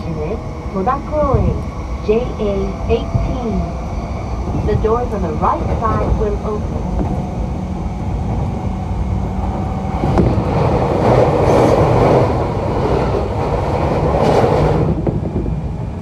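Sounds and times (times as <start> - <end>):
low steady tones: 0.0 - 10.6
rush of train running noise: 0.0 - 16.0
train wheels rumbling on rail: 0.0 - 16.0.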